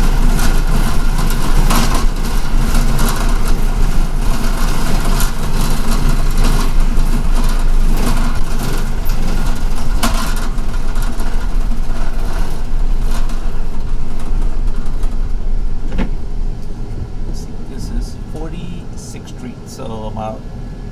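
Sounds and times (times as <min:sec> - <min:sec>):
knocks and rattles: 0:00.0 - 0:16.7
bus engine hum: 0:00.0 - 0:20.9
road noise: 0:00.0 - 0:20.9.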